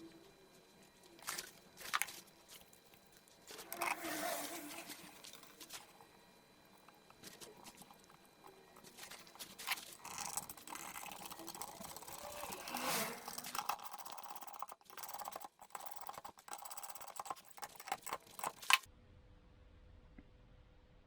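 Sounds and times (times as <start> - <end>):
hand tools clicking and rattling: 8.8 - 18.9.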